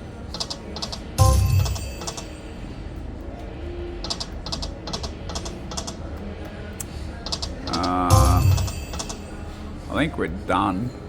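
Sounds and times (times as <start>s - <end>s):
electronic clicks and chimes: 1.2s - 2.4s.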